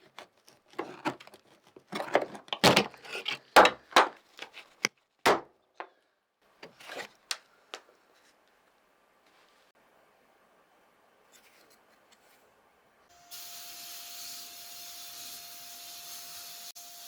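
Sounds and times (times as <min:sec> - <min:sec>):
spraying hiss: 0:13.3 - 0:16.8.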